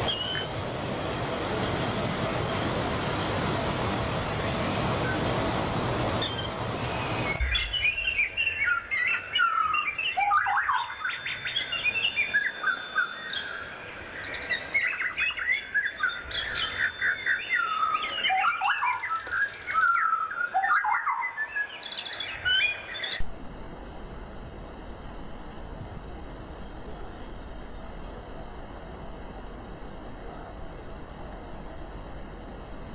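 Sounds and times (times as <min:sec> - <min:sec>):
songbirds chirping and whistling: 0:00.0 - 0:00.6, 0:06.2 - 0:23.2
loud rushing noise: 0:00.0 - 0:08.4.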